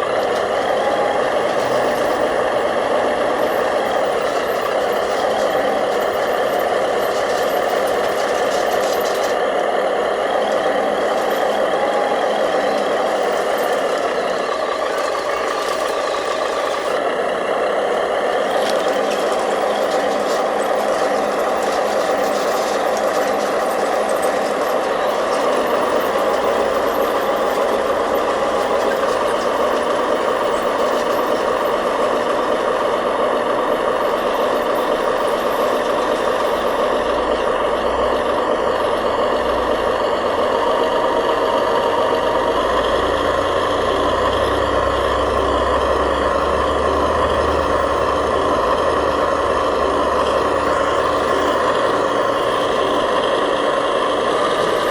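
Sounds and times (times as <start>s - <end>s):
model machines mechanical drone: 0.0s - 54.9s.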